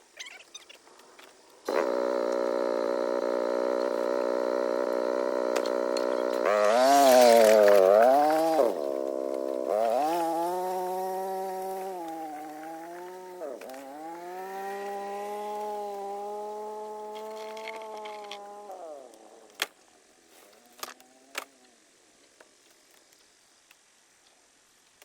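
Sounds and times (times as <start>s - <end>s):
engine running at speed: 1.7s - 19.2s.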